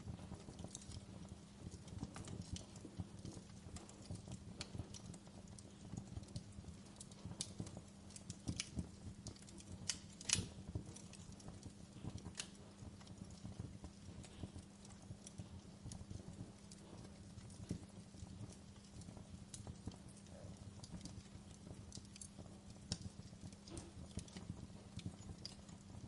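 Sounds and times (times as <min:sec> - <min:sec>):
low steady background: 0:00.0 - 0:26.0
wood fire crackling: 0:00.0 - 0:26.0.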